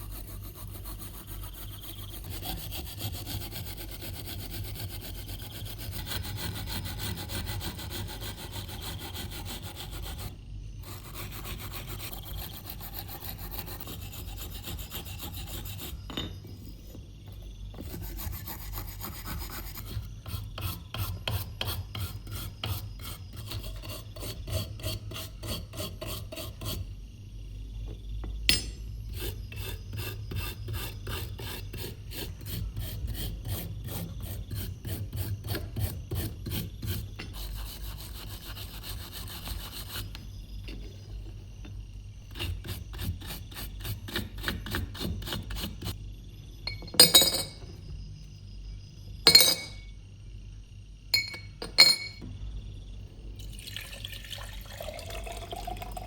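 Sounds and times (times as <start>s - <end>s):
file rasping on metal blade: 0.0s - 16.2s, 17.8s - 26.9s, 29.1s - 40.2s, 42.3s - 46.0s.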